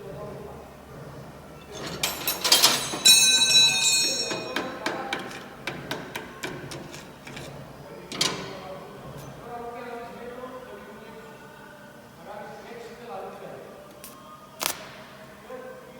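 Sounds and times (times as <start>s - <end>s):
metal striking metal ringing: 1.6s - 5.6s.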